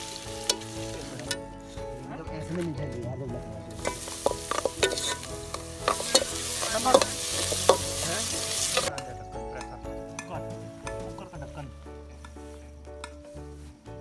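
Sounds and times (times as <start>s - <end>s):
food sizzling in a pan: 0.0s - 1.9s, 3.6s - 9.0s
utensil stirring against pan: 0.0s - 2.6s, 3.4s - 9.0s.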